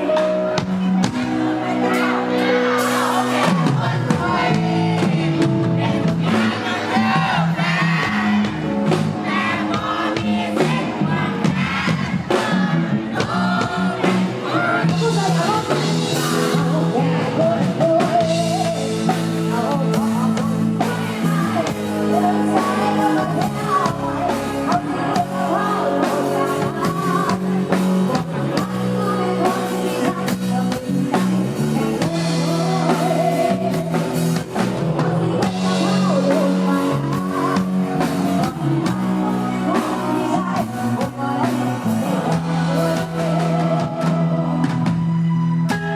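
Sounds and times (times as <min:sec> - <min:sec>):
band music with bass and drums: 0:00.0 - 0:45.9
person singing: 0:13.1 - 0:45.9.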